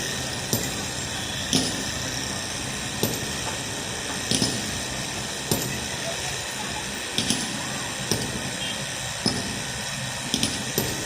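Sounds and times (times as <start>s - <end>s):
rushing water noise: 0.0s - 11.0s.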